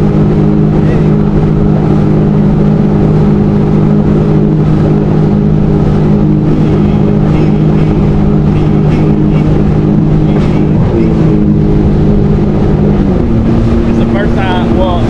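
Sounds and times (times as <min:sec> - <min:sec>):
jet ski engine running: 0:00.0 - 0:15.0
wind on microphone: 0:00.0 - 0:15.0.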